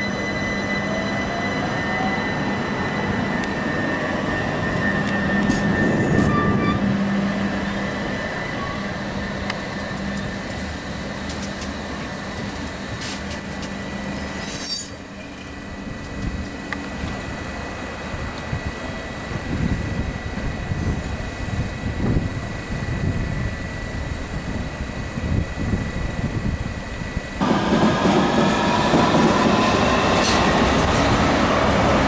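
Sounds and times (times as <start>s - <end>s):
high-pitched train squeals: 0.0s - 10.4s, 13.0s - 15.9s
electric train motor whine: 0.0s - 32.0s
wheels rumbling on rail: 0.0s - 32.0s.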